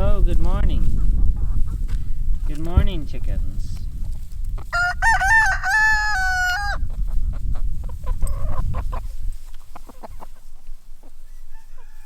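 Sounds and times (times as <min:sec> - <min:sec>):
chickens clucking: 0:00.0 - 0:12.0
rooster crowing: 0:04.7 - 0:06.8, 0:11.2 - 0:12.0.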